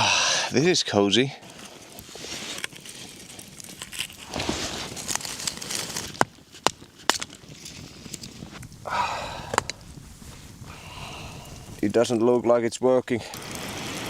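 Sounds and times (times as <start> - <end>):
blanket and clothing rustling: 1.6 - 6.1.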